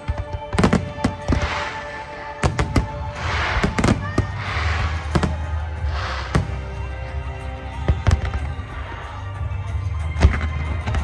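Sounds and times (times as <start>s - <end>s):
fireworks bangs: 0.0s - 8.8s
fireworks crackling hiss: 0.6s - 9.1s.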